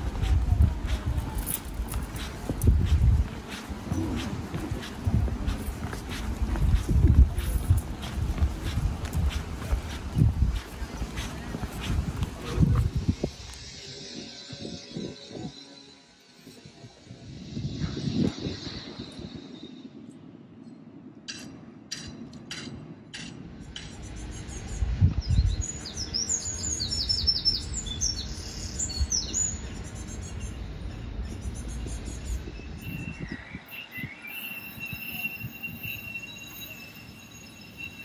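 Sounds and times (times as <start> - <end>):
low outdoor rumble: 0.0 - 14.4
birds chirping: 0.0 - 15.5, 23.6 - 38.0
thin high tone: 12.4 - 20.4.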